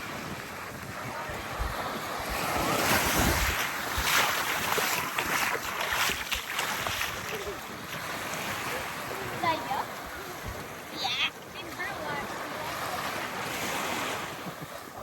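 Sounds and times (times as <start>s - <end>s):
small waves breaking on sand: 0.0s - 15.0s
wind buffeting microphone: 0.0s - 15.0s.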